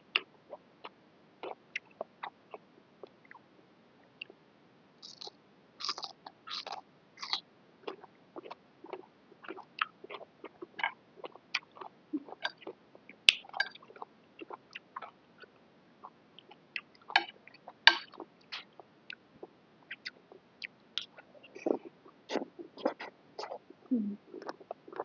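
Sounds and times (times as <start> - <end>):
wet chewing: 5.0 - 15.5.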